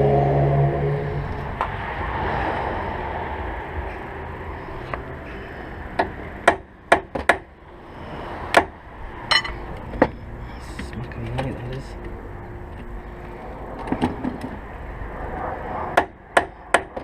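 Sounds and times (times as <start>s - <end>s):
hammer tapping on metal: 9.3s - 9.6s.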